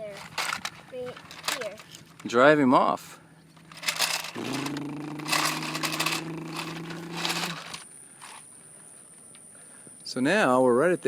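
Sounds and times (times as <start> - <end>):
toy excavator scraping gravel: 0.0 - 2.0, 3.6 - 8.4
low engine-like hum: 3.0 - 8.4.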